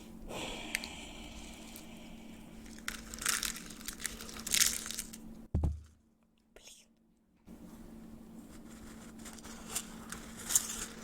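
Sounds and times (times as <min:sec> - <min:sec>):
crinkling and crumpling: 0:02.6 - 0:05.3, 0:08.6 - 0:11.0.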